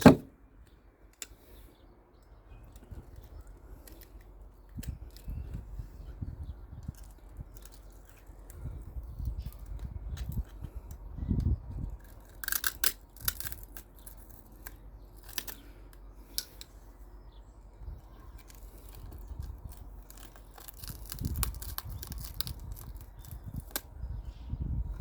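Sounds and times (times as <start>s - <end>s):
dull handling bumps: 0.0s - 0.4s.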